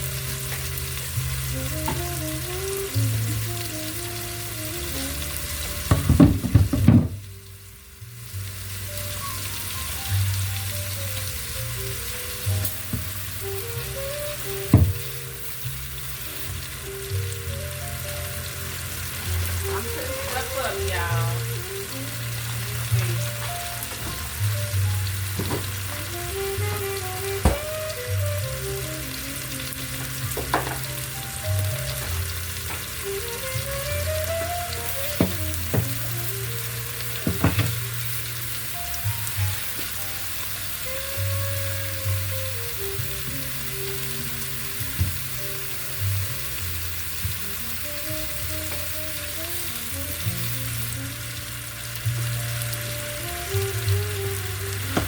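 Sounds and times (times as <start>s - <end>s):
food sizzling in a frying pan: 0.0s - 55.0s
things being set down: 5.9s - 7.2s, 25.4s - 25.8s, 30.4s - 30.8s, 37.3s - 37.8s.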